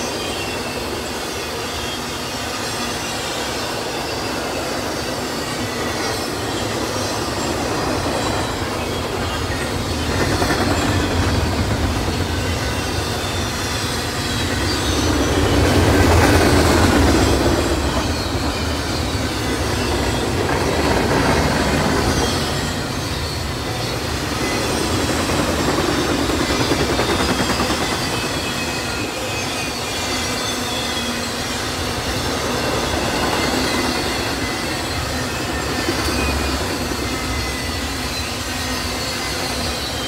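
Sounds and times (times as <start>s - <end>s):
freight train wheels rumbling on rail: 0.0s - 40.0s.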